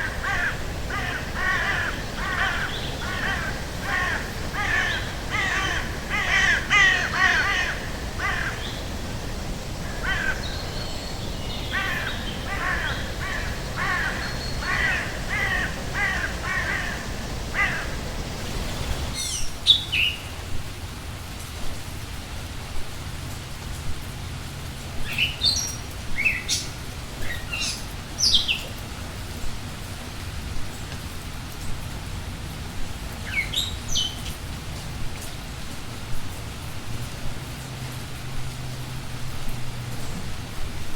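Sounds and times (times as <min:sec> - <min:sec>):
harsh repeated bird calls: 0:00.0 - 0:19.6
steady background hiss: 0:00.0 - 0:40.9.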